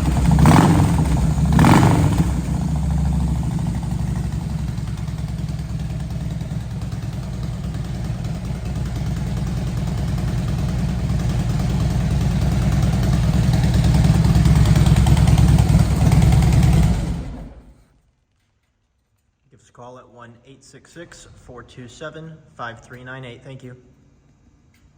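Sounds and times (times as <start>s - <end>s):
motorcycle engine idling: 0.0s - 17.8s.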